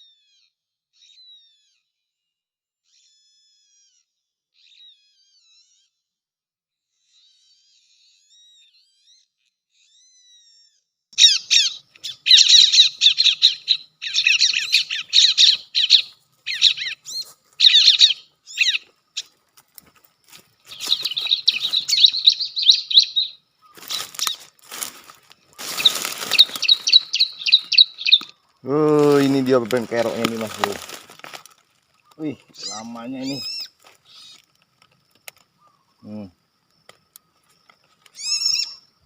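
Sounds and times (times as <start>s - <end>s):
bird chirping rapidly: 11.2s - 19.3s, 20.7s - 24.6s, 25.5s - 30.8s, 32.0s - 34.4s, 38.1s - 39.0s
rustling noise: 23.7s - 32.6s.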